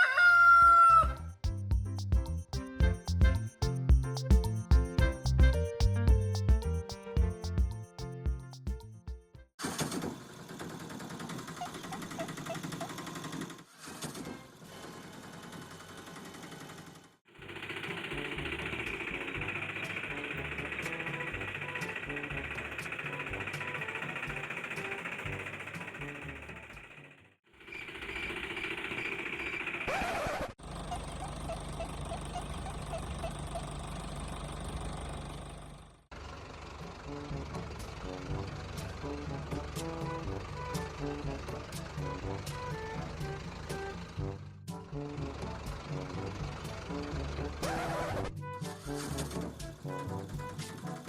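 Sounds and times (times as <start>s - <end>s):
small motor rattling: 9.6s - 37.0s, 40.8s - 44.4s
engine idling: 14.6s - 51.0s.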